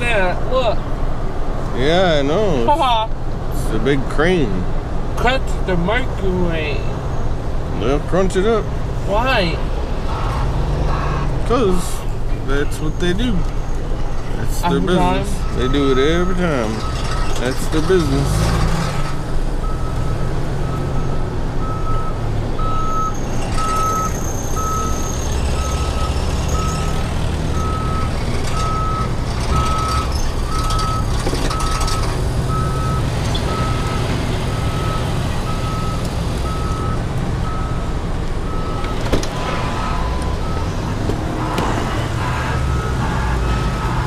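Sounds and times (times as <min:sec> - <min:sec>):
diesel engine rumble: 0:00.0 - 0:44.0
reversing alarm beeping: 0:19.6 - 0:40.8, 0:41.4 - 0:44.0.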